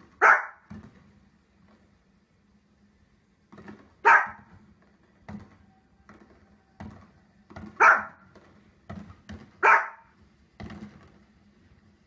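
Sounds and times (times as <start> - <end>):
dog barking: 0.2 - 0.7, 4.0 - 4.5, 7.7 - 8.2, 9.6 - 10.1.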